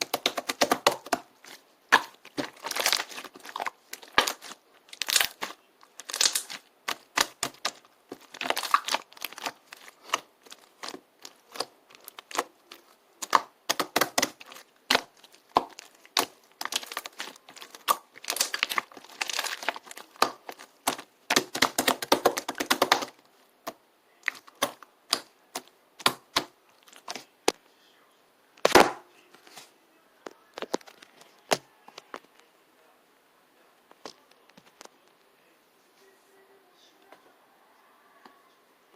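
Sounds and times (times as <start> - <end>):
crisp clicking and crinkling: 0.0 - 27.6, 29.4 - 32.5.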